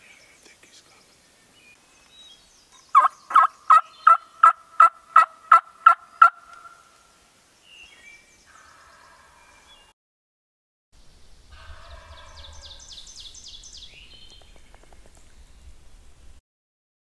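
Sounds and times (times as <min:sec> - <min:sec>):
faint songbird chirps: 0:00.0 - 0:04.6, 0:05.8 - 0:09.9, 0:11.2 - 0:16.3
turkey yelps: 0:02.9 - 0:06.8.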